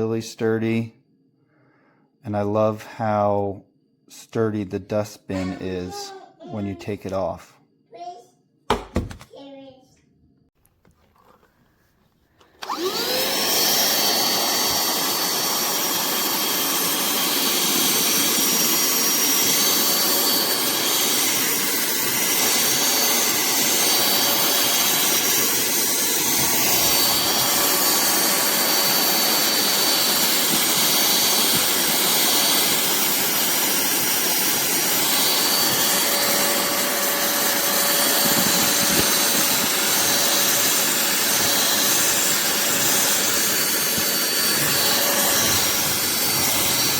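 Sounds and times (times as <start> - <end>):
handheld vacuum motor whining: 12.4 - 46.9.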